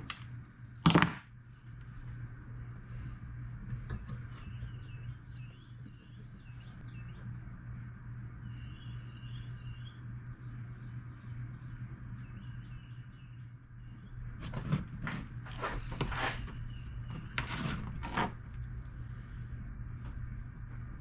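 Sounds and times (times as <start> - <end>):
steady low hum: 0.0 - 21.0
small birds chirping: 1.9 - 14.6, 15.5 - 17.4.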